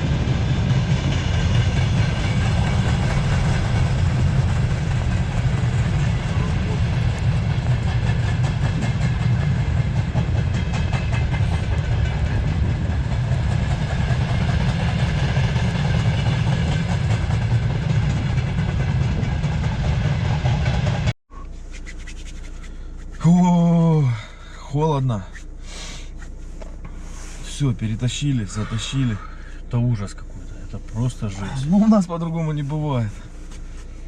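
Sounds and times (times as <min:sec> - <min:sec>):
strong wind buffeting microphone: 0:00.0 - 0:21.1
man exclaiming: 0:23.2 - 0:24.3, 0:31.2 - 0:32.2.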